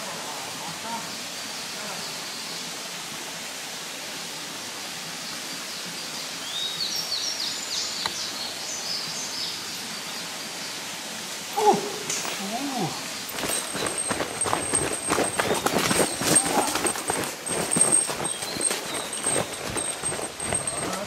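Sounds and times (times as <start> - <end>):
outdoor background hiss: 0.0 - 21.0
songbird chirping: 11.4 - 21.0
person's voice: 20.7 - 21.0.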